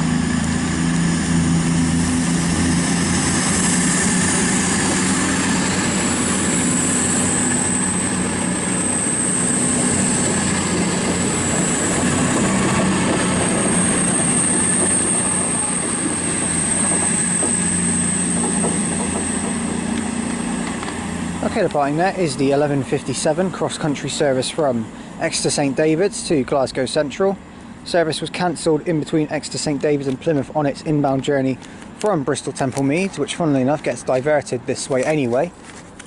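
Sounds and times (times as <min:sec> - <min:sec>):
high whine: 0:00.0 - 0:35.1
diesel train engines droning: 0:00.0 - 0:36.0.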